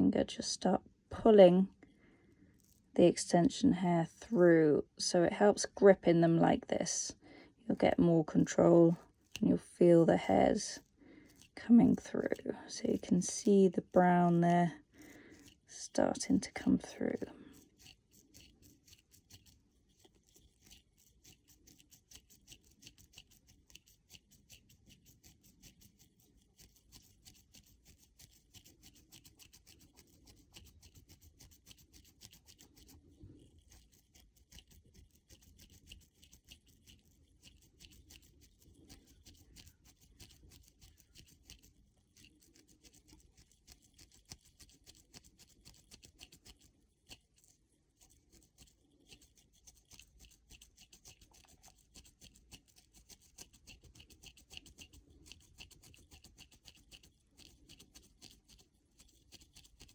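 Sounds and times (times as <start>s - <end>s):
crochet hook scratching hair: 1.2s - 59.9s.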